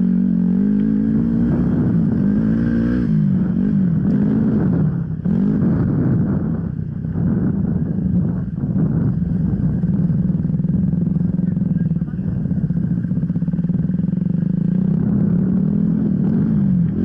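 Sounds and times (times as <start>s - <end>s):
dirt bike engine revving: 0.0s - 6.6s, 12.8s - 17.0s.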